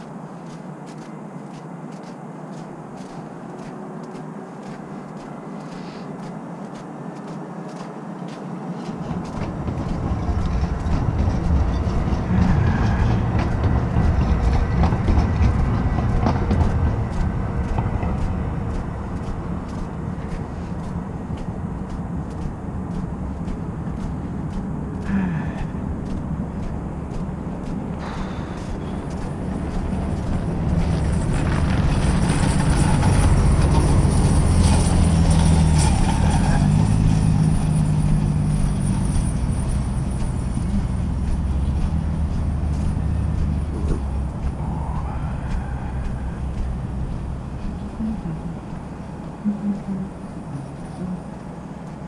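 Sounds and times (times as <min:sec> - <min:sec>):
transit vehicle low rumble: 0:00.0 - 0:52.0.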